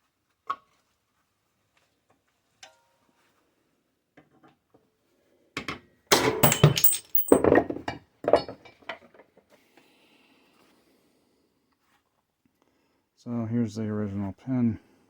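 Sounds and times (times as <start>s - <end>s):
metal knocks and clinks: 6.1s - 8.6s.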